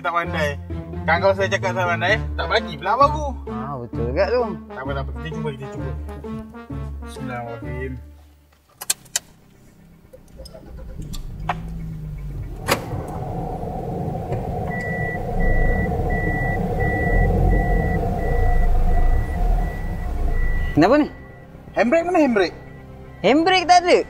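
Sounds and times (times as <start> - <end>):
car engine starting and idling: 9.0 - 23.3
warning beep: 14.0 - 21.6.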